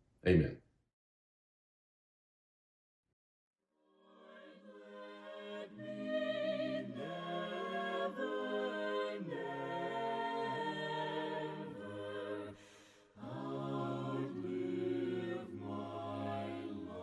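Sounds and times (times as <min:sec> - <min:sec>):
a cappella harmony singing: 0:03.9 - 0:17.0.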